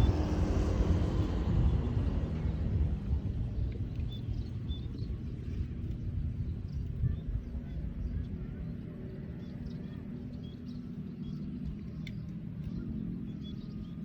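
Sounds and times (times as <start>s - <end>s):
motorcycle engine rumbling: 0.0s - 4.8s.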